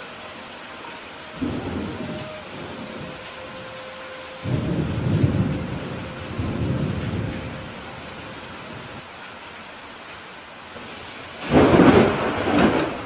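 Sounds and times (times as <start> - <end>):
steady rain falling: 0.0 - 13.0
thunder rumbling: 1.4 - 3.7, 4.3 - 9.0, 10.9 - 13.0.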